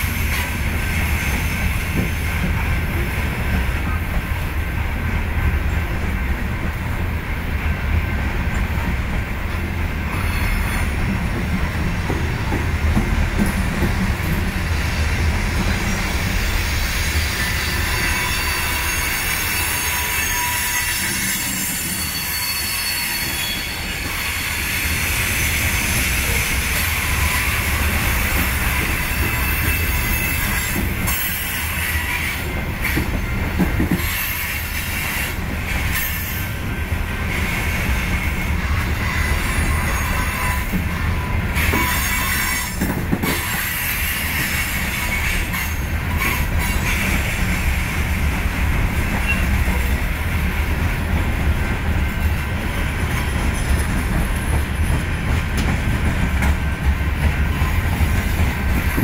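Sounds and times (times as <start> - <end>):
steel wheels rumbling on rails: 0.0 - 59.0
high wheel squeal: 10.1 - 11.0, 15.8 - 32.4, 37.4 - 42.8, 49.1 - 50.0.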